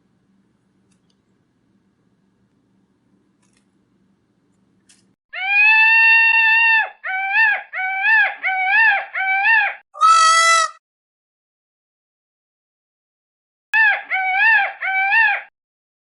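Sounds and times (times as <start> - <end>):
animal calling: 5.4 - 10.8.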